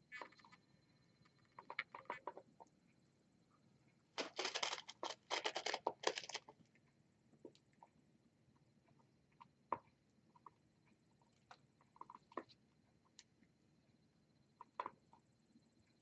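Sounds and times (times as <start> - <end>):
birds pecking at food: 4.2 - 6.8.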